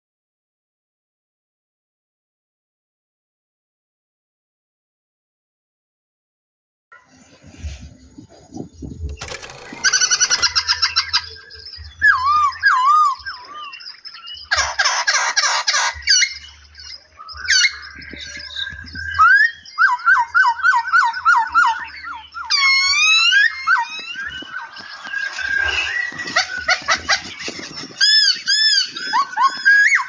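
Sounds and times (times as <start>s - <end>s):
songbirds singing and calling: 7.0s - 30.0s
harsh bird chatter: 8.0s - 30.0s.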